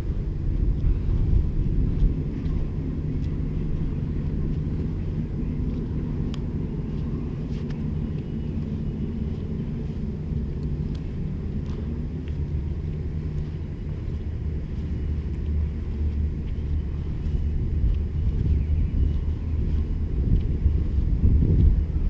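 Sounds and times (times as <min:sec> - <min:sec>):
vehicle engine rumble: 0:00.0 - 0:22.0
faint ticks: 0:05.6 - 0:16.7.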